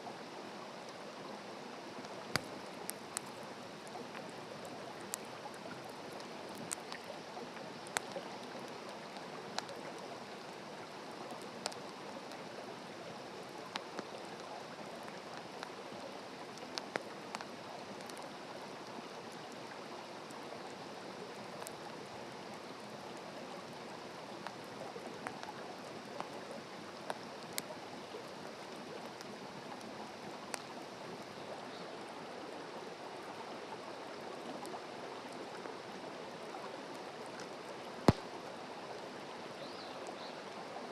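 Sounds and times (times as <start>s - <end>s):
campfire hissing: 2.0s - 18.3s
fire crackling and popping: 2.1s - 5.4s, 6.2s - 7.1s, 7.7s - 8.2s, 16.5s - 18.3s, 38.0s - 38.4s.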